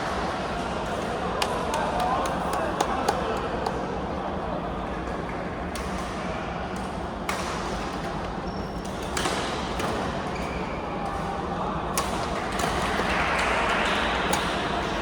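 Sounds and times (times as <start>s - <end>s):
indoor hall background: 0.0s - 15.0s
sneakers squeaking on floor: 8.4s - 9.0s, 10.3s - 10.8s.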